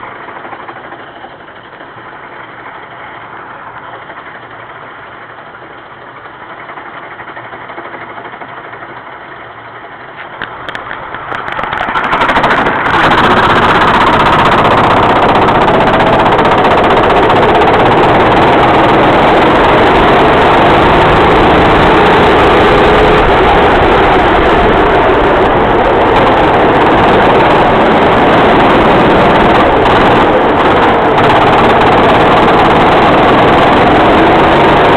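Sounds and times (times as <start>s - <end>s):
kart engine revving: 10.3s - 34.9s.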